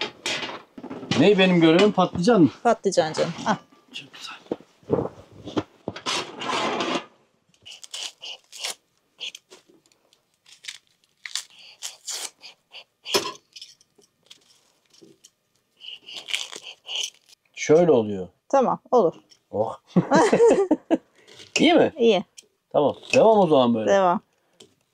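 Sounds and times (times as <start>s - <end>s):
rasping scrape on eggplant: 7.6s - 9.4s, 11.5s - 13.2s, 15.8s - 17.4s.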